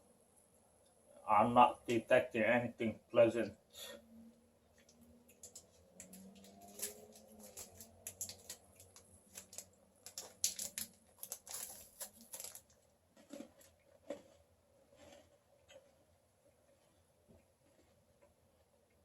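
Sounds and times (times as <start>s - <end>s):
chewing crunchy chocolate bar: 4.8s - 16.8s.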